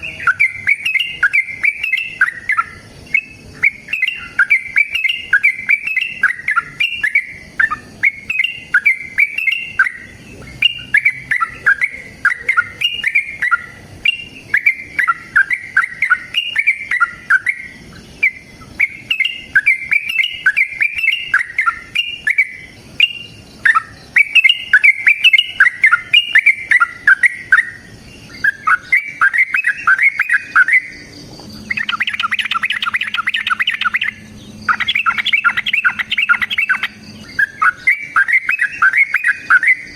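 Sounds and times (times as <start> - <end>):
bulbul chattering song: 0.0 - 39.9
low steady hum: 0.0 - 39.9.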